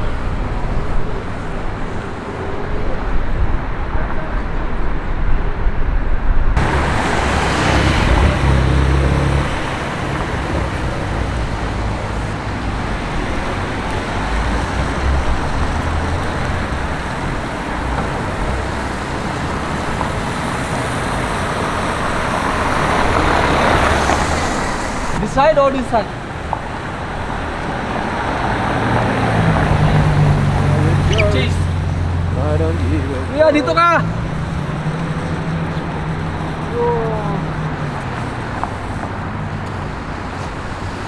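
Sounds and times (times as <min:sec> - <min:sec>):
low engine rumble: 0:00.0 - 0:25.4
cars passing: 0:00.0 - 0:41.0
road noise: 0:00.0 - 0:41.0.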